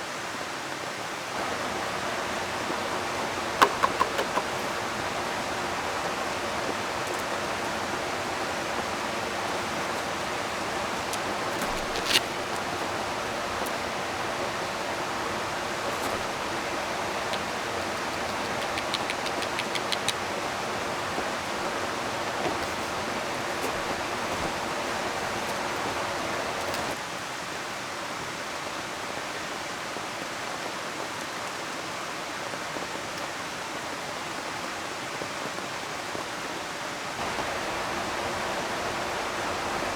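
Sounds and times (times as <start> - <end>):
rain: 0.0 - 39.9
river flowing: 0.6 - 27.3, 36.8 - 39.9
light ticks: 17.2 - 20.2.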